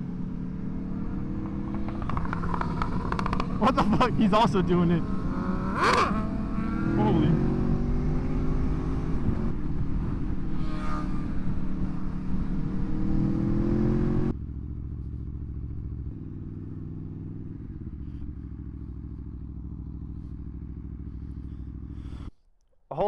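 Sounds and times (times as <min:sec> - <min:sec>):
motorcycle engine pulling hard: 0:00.0 - 0:14.3.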